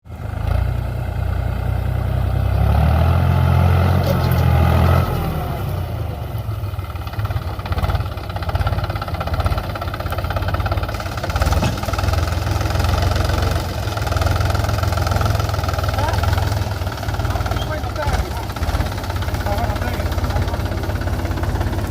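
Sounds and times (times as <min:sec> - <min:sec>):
tractor engine running: 0:00.0 - 0:21.9.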